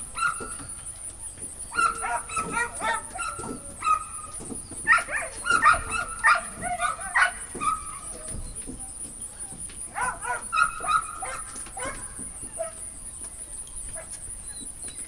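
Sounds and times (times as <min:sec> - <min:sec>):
dog whining and yelping: 0:01.7 - 0:13.2.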